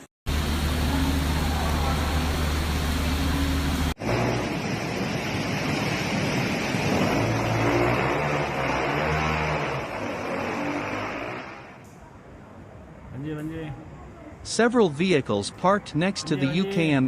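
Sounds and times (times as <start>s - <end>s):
flood water rushing: 0.3s - 11.5s.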